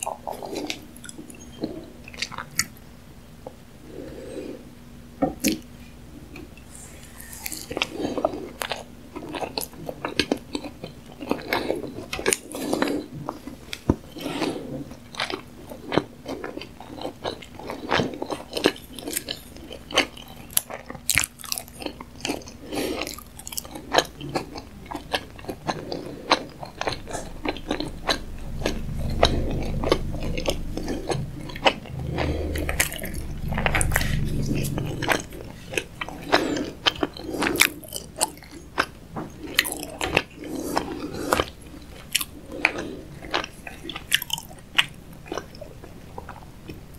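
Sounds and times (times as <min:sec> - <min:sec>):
person chewing sushi: 0:06.3 - 0:46.9
low hum: 0:24.8 - 0:38.3.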